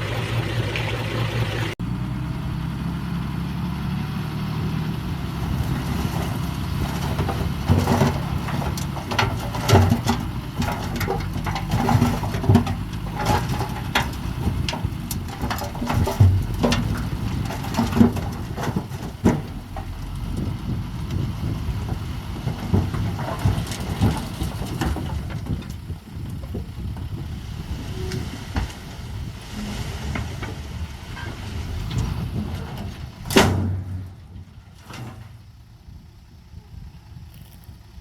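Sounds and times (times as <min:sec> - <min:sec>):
bulldozer diesel engine running: 0:00.0 - 0:38.0
metal clanks and knocks: 0:05.9 - 0:27.2.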